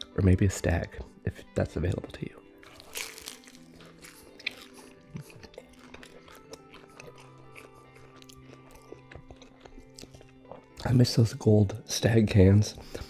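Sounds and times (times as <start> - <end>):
faint background music: 0.0 - 13.0
crunching pizza crust: 2.6 - 10.2.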